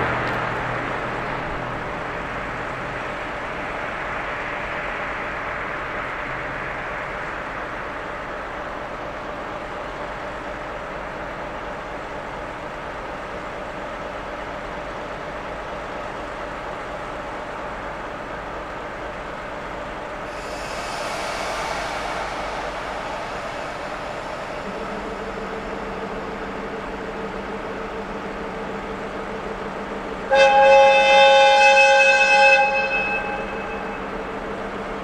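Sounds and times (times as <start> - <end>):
train humming: 0.0 - 35.0
high hiss: 20.2 - 27.5.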